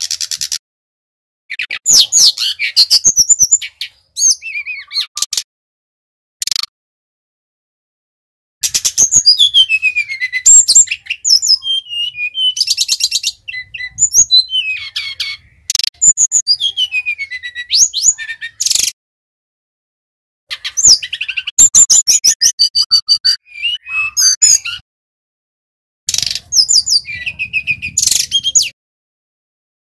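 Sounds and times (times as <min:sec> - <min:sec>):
bird singing whistles and trills: 0:01.5 - 0:05.3, 0:08.6 - 0:19.0, 0:20.5 - 0:24.8, 0:26.1 - 0:28.8.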